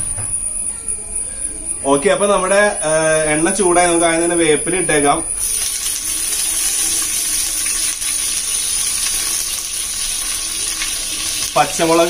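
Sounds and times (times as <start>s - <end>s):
onions sizzling in oil: 5.4s - 12.0s.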